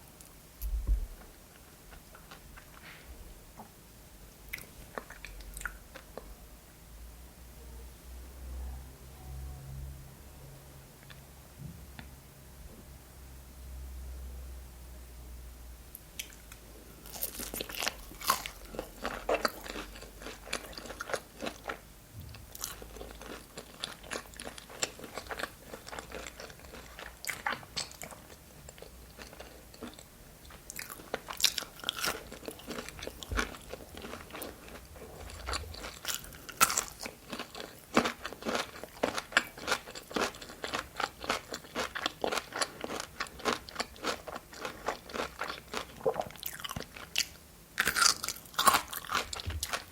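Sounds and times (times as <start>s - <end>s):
person crunchy chewing: 17.0s - 49.9s.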